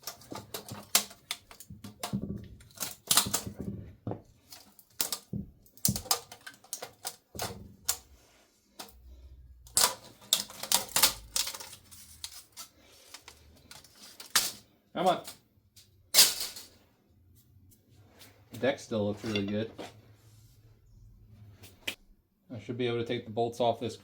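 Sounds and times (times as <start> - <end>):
metal tools clicking and clinking: 0.0 - 3.6, 9.7 - 14.6.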